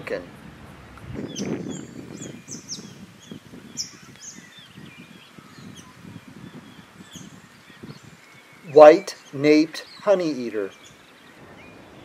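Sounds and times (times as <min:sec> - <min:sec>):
small birds chirping: 0:01.0 - 0:12.0.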